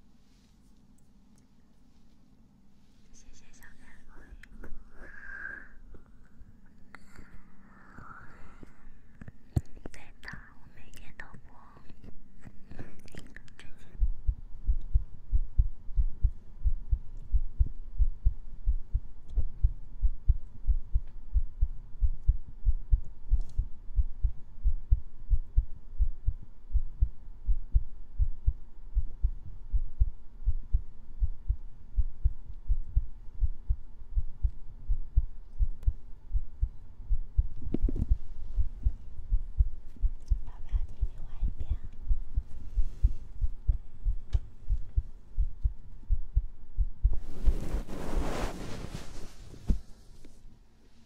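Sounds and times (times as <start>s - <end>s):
heartbeat thuds: 13.9s - 49.9s
brushing noise: 47.2s - 50.4s.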